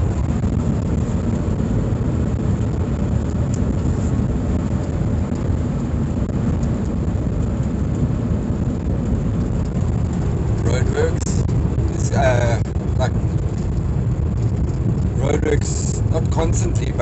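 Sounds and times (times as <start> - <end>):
engine and road noise in cab: 0.0 - 17.0.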